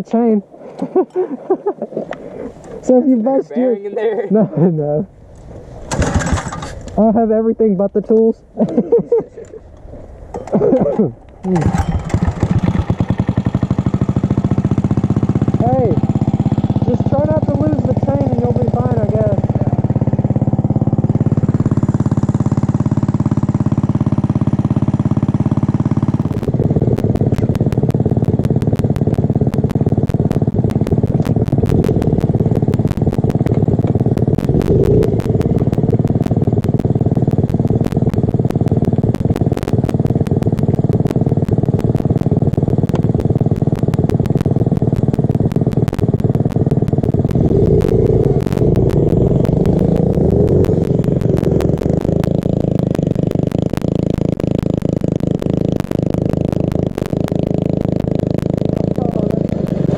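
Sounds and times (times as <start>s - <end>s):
mini bike engine: 5.4s - 7.2s, 8.8s - 59.9s
rapid clicking and clatter: 26.0s - 59.9s.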